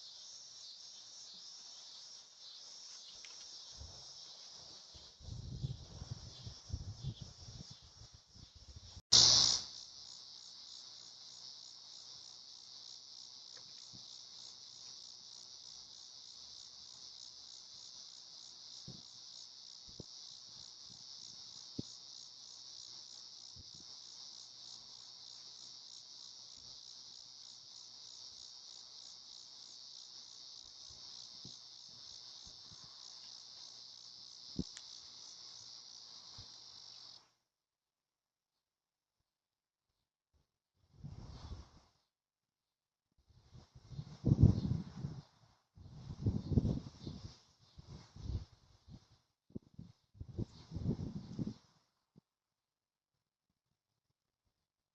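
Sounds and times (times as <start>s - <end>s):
insects trilling: 0.0s - 37.3s, 43.6s - 49.1s.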